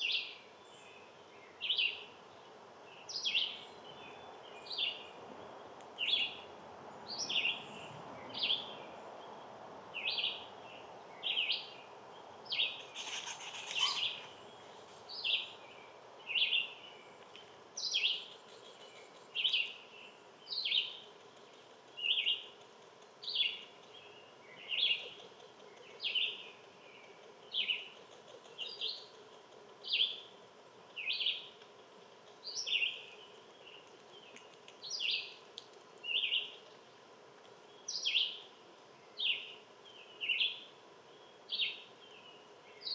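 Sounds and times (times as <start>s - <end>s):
faint outdoor background noise: 0.0s - 42.9s
bird chirping: 12.5s - 36.7s.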